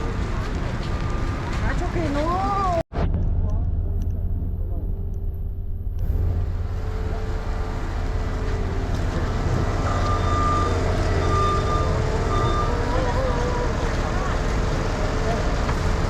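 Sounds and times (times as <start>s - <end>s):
truck reversing alarm beeps: 0.0s - 1.7s, 6.0s - 15.6s
street traffic rumble: 0.0s - 16.0s.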